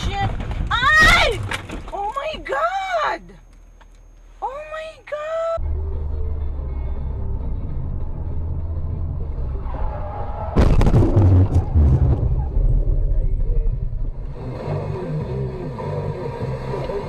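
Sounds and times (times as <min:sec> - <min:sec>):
car collision crunch: 0:00.0 - 0:02.3
car driving rumble: 0:05.5 - 0:17.0.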